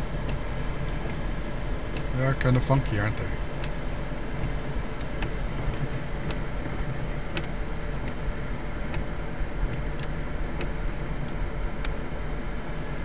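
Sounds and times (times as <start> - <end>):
car engine idling: 0.0 - 13.0
windshield wipers clicking: 0.0 - 13.0.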